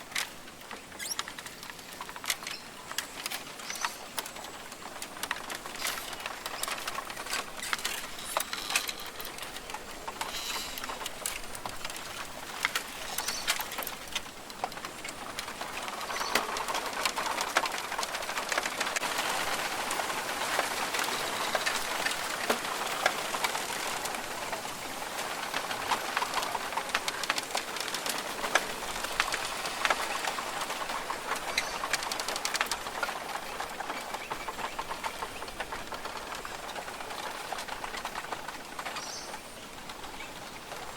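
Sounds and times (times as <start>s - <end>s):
small ticks and clicks: 0.0s - 40.9s
steady hiss: 0.0s - 40.9s
birds calling: 0.7s - 14.0s, 29.3s - 40.9s.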